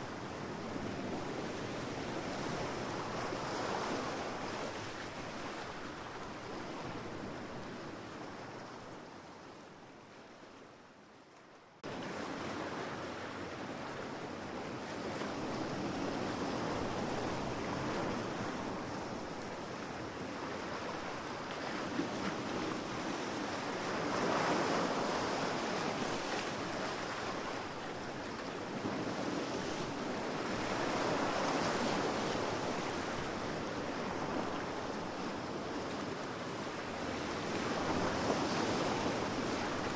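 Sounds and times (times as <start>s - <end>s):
ocean waves breaking on beach: 0.0s - 9.2s, 11.8s - 39.9s.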